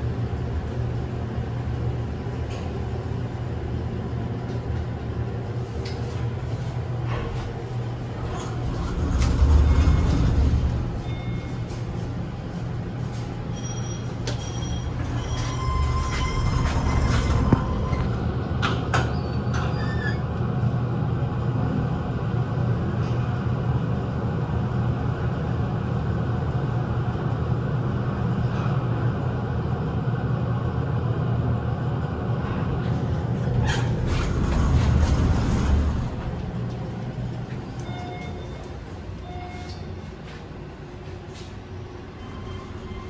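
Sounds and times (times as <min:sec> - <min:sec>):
train rumbling through station: 0:00.0 - 0:43.0
high-pitched wheel squeals: 0:13.5 - 0:18.2, 0:19.1 - 0:20.2, 0:42.2 - 0:43.0.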